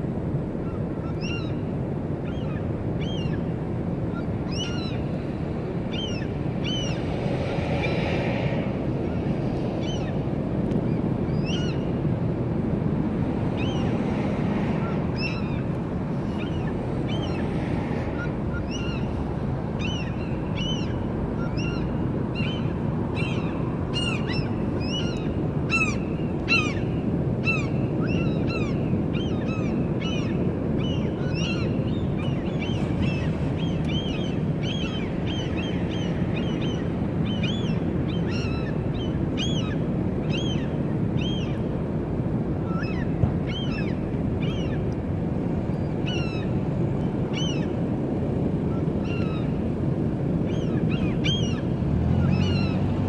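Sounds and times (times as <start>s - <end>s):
gulls calling: 5.9s - 7.0s, 14.8s - 42.0s, 42.6s - 53.0s.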